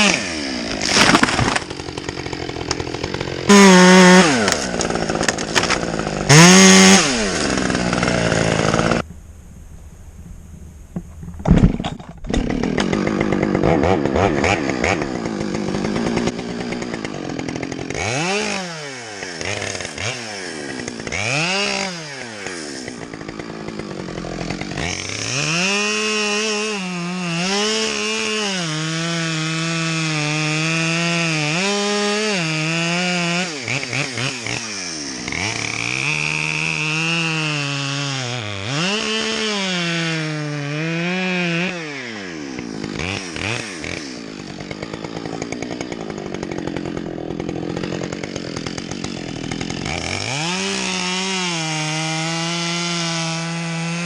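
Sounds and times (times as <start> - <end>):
chainsaw cutting wood: 0.0 - 9.3, 10.2 - 54.0.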